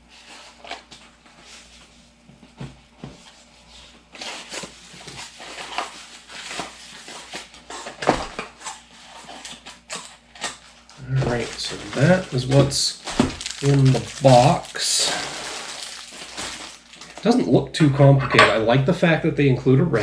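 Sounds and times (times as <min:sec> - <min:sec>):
parts and packaging handled: 0:02.5 - 0:17.3.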